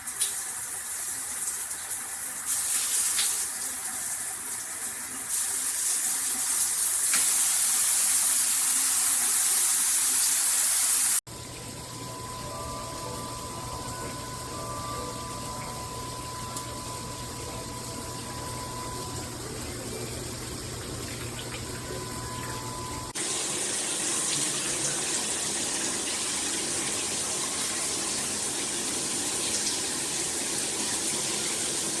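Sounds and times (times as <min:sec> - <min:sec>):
water spraying from shower head: 0:02.5 - 0:03.6, 0:05.3 - 0:11.2.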